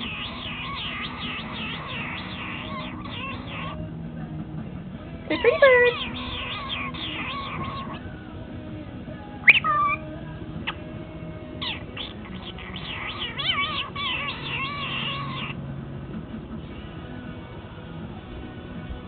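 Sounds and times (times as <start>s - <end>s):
parrot chattering notes: 0.0s - 3.8s, 5.3s - 8.1s, 9.4s - 10.1s, 11.6s - 15.6s
parrot squawking: 0.0s - 3.8s, 5.3s - 8.1s, 9.4s - 10.8s, 11.6s - 15.6s.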